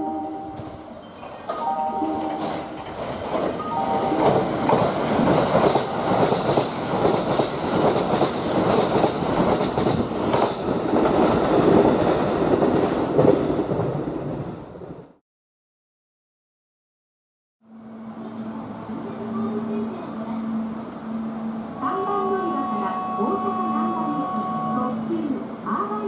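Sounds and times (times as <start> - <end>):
train rushing past: 0.3 - 15.0
wheels clacking over rail joints: 1.3 - 14.0.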